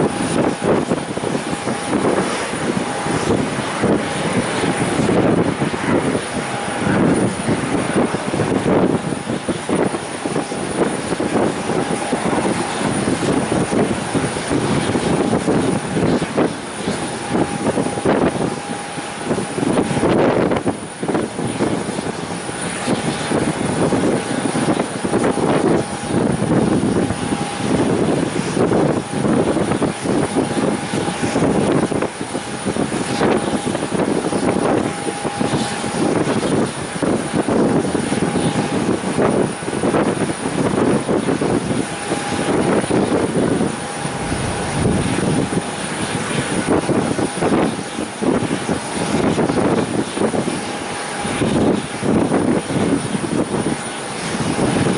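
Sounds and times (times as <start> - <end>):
aircraft engine roar: 0.0 - 54.9.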